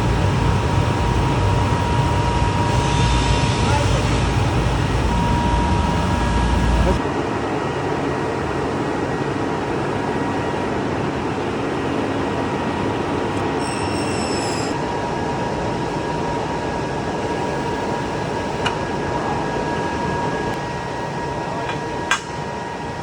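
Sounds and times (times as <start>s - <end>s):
glass-cutting machine running: 0.6s - 7.0s, 13.4s - 14.8s
high squeal: 1.4s - 7.0s, 13.4s - 14.8s.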